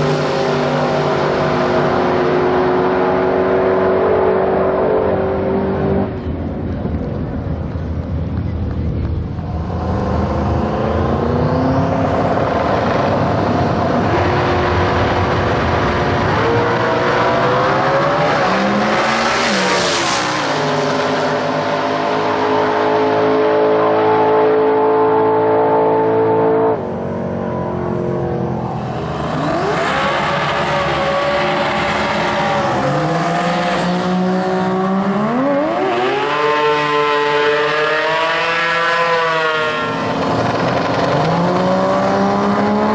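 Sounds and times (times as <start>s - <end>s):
drag car engine revving: 27.5s - 42.9s.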